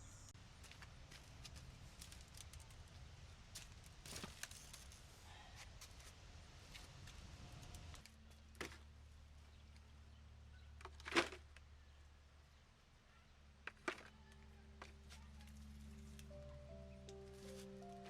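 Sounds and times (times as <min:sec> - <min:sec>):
low steady hum: 0:00.0 - 0:02.4, 0:07.2 - 0:18.0.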